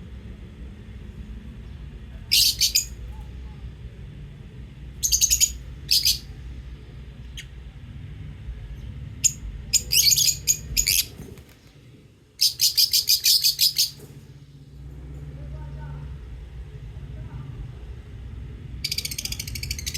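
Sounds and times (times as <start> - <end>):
faint low hum: 0.0 - 19.9
lovebirds chirping: 1.6 - 3.3, 5.0 - 6.4, 8.7 - 14.1, 18.8 - 19.9.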